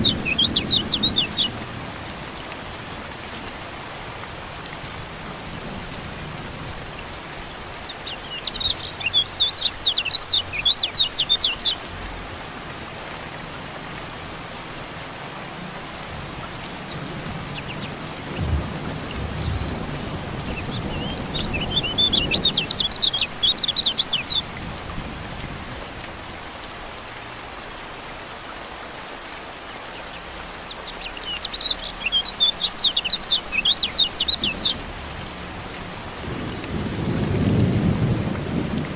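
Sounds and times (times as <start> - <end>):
bird high rapid chirping: 0.0 - 1.5, 19.0 - 24.4, 31.0 - 34.8
low thunder rumble: 0.0 - 2.3, 16.1 - 23.2, 36.2 - 38.9
steady rain: 0.0 - 38.9.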